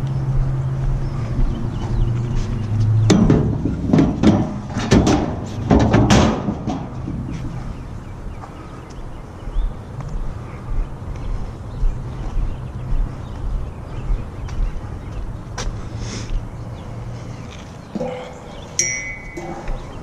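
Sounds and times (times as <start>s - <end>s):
low vehicle hum: 0.0s - 20.0s
sharp knocks and clatters: 2.7s - 7.8s.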